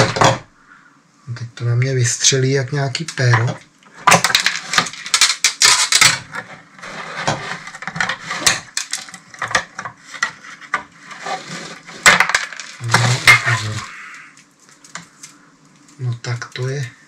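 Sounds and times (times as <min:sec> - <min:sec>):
wire crackling and clicking: 0:03.0 - 0:06.6, 0:07.7 - 0:10.8, 0:12.0 - 0:17.0.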